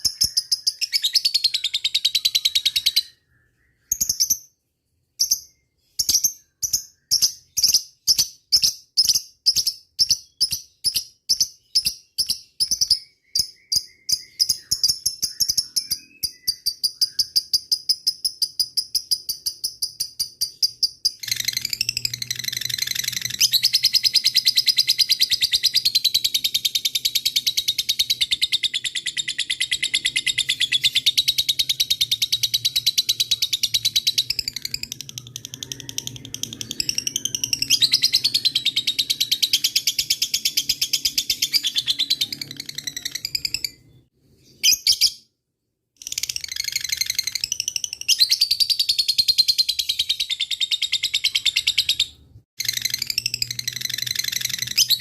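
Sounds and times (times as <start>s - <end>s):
lovebird chattering trill: 11.6s - 44.0s.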